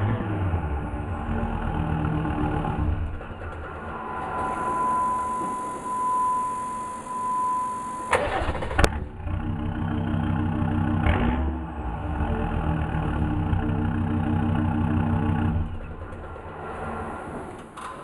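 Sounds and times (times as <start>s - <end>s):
diesel engine starting and idling: 0.0s - 18.0s
starter motor whine: 2.0s - 9.5s.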